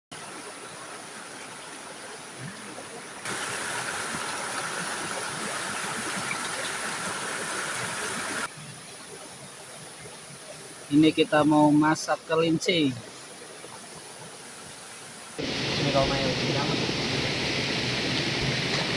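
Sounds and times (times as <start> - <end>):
river water rushing over rocks: 0.2 - 10.9.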